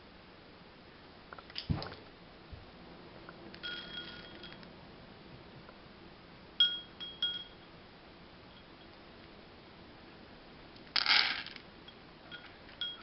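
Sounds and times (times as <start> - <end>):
small bell jingling: 3.6 - 4.6, 6.6 - 7.7.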